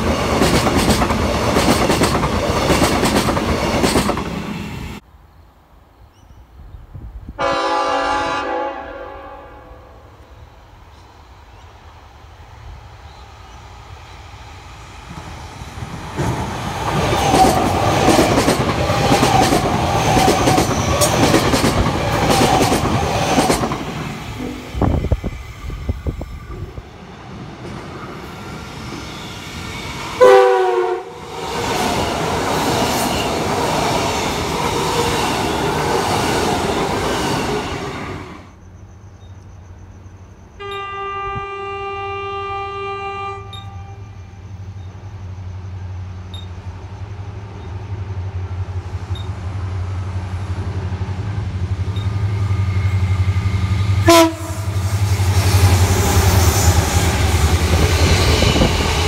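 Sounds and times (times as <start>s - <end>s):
train wheels clicking over rail joints: 0.0s - 4.5s, 15.0s - 30.2s
steady train horn note: 7.4s - 10.3s, 30.2s - 31.2s, 40.6s - 44.3s, 53.8s - 56.7s
train horn blast dropping in pitch: 7.4s - 10.3s, 30.2s - 31.2s, 40.6s - 44.4s, 54.0s - 54.9s.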